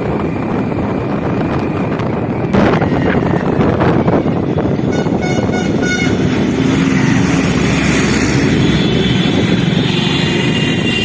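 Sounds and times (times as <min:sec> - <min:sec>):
motorcycle engine and road noise: 0:00.0 - 0:11.0
wind: 0:00.0 - 0:11.0
horn toot: 0:04.9 - 0:06.4.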